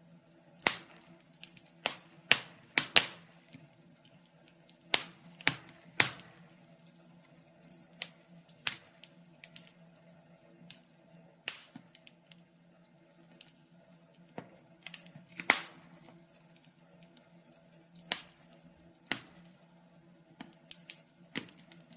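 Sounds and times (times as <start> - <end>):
wood fire crackling: 0.0 - 21.9
sharp pops of fire: 0.6 - 9.8, 11.4 - 12.4, 14.3 - 16.5, 17.9 - 19.6, 20.4 - 21.9.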